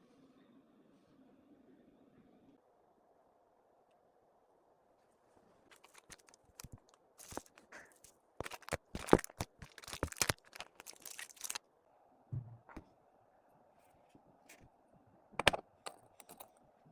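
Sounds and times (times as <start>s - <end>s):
packaging crinkling and tearing: 5.7s - 11.6s
short low thump: 12.3s - 12.8s.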